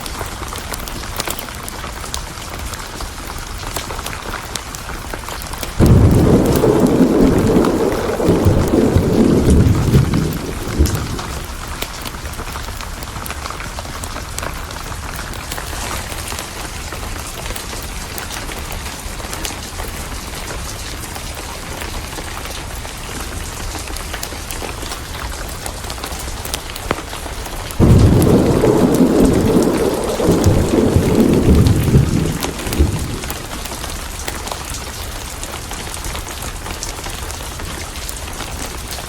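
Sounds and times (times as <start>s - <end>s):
steady rain pattering: 0.0s - 39.0s
thunderclap rumbling: 5.7s - 12.0s, 27.6s - 34.8s.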